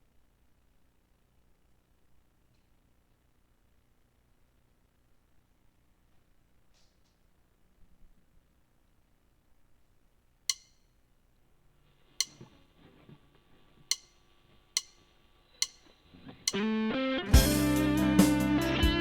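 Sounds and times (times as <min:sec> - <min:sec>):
distorted electric guitar run: 0:16.1 - 0:19.0
loud band music with beat: 0:17.3 - 0:19.0.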